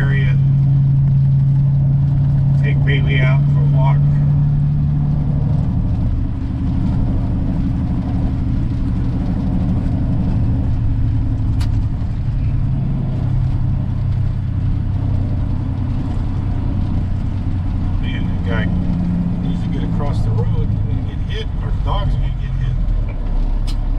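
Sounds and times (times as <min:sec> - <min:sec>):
truck diesel engine humming: 0:00.0 - 0:23.9
sharp click: 0:23.1 - 0:23.9.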